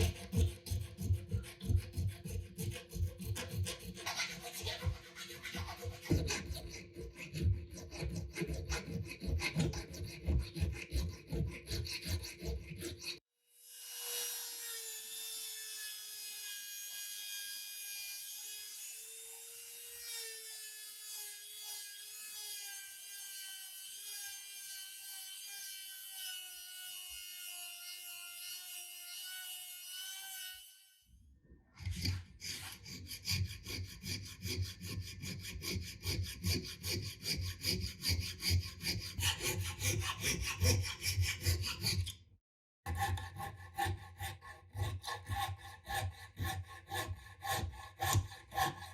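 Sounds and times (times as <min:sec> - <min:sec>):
hand tool sawing wood: 0:00.0 - 0:13.2, 0:31.8 - 0:42.2, 0:42.9 - 0:48.9.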